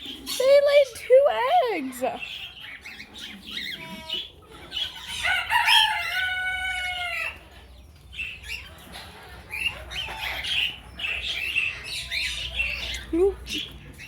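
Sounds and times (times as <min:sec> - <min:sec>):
birds calling: 0:00.0 - 0:14.0.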